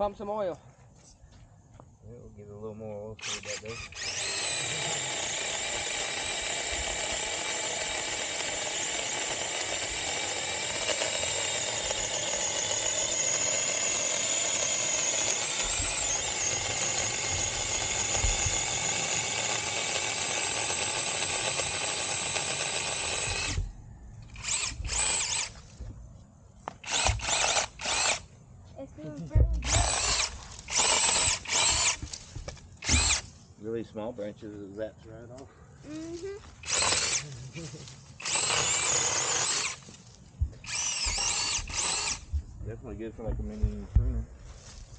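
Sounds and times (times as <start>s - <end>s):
electric chainsaw cutting wood: 3.2s - 25.6s, 26.7s - 28.3s, 29.6s - 32.1s, 32.8s - 33.2s, 36.6s - 37.4s, 38.2s - 39.9s, 40.6s - 42.4s.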